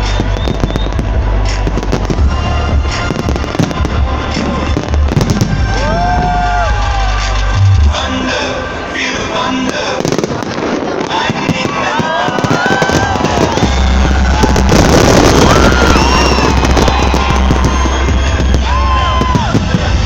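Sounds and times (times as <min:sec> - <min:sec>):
fireworks crackling and popping: 0:00.0 - 0:07.8, 0:08.9 - 0:20.0
low bass: 0:00.0 - 0:08.9, 0:13.1 - 0:20.0
background music: 0:00.0 - 0:20.0.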